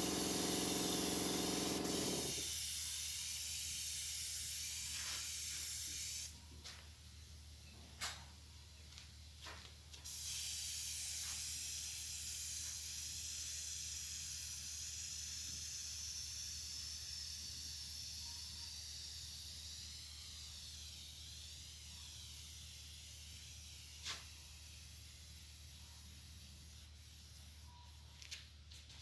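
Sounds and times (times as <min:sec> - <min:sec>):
spray gun hissing: 0:00.0 - 0:06.3.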